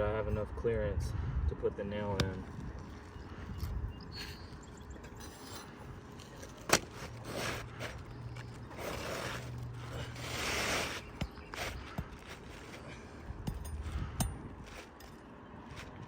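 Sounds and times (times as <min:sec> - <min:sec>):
shingles scraping and rustling: 0:05.0 - 0:13.2, 0:14.6 - 0:16.0.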